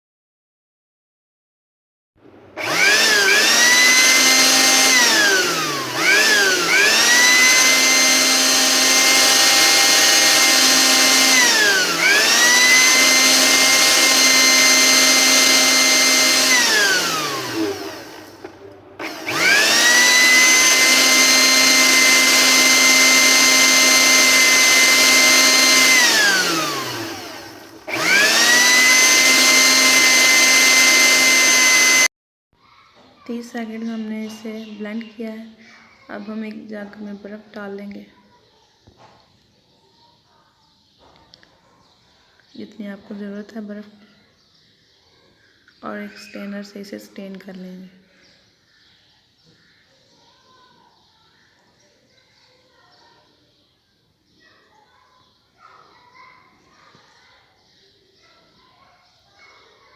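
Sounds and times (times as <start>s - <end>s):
electric blender motor whining: 2.6s - 32.1s.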